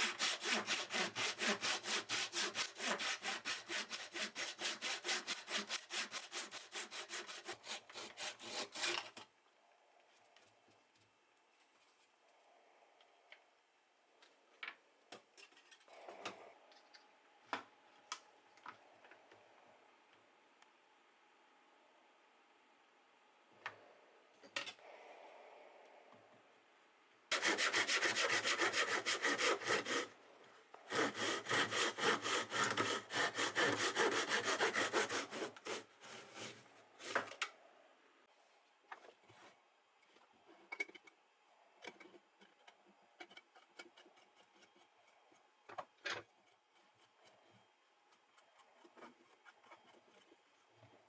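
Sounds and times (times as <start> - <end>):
hand saw cutting wood: 0.0 - 9.2, 27.3 - 30.2, 30.9 - 37.3.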